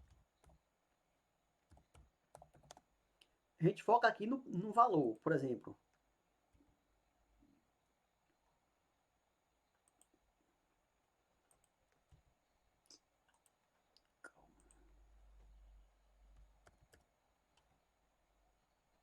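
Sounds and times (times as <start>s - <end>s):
computer mouse and keyboard clicks: 1.6s - 2.9s, 11.5s - 12.3s, 13.2s - 15.5s, 16.3s - 17.8s
faint low rumble: 14.3s - 16.7s.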